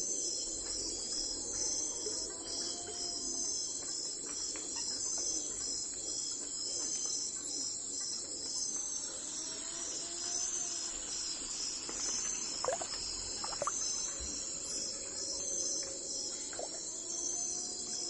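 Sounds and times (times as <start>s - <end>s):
crickets chirping: 0.0s - 18.0s
short bird chirps: 12.6s - 13.8s.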